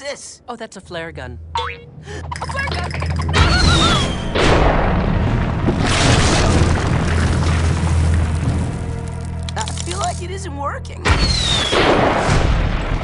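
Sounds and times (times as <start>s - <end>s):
loud booming bursts: 3.4s - 9.1s, 11.0s - 13.0s
low steady music: 7.9s - 12.0s.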